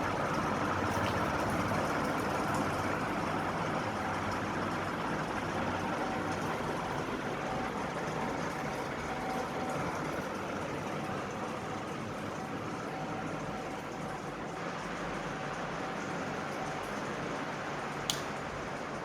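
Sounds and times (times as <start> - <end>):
ceiling fan air rush: 0.0 - 12.3.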